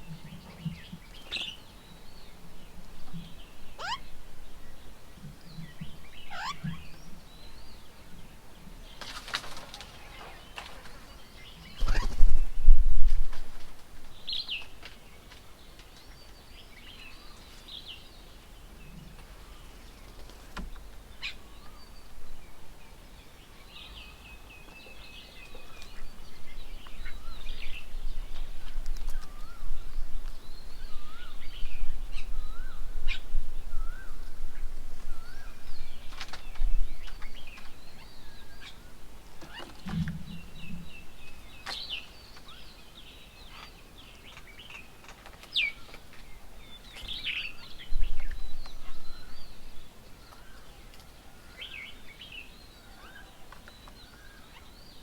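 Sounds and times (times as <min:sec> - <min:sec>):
birds chirping and whistling: 0:03.1 - 0:04.2, 0:05.5 - 0:07.7, 0:23.8 - 0:34.4.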